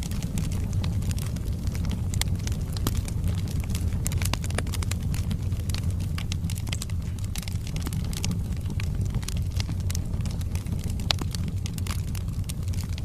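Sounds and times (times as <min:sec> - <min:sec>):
low rumble: 0:00.0 - 0:13.0
wood fire crackling and popping: 0:00.0 - 0:13.0.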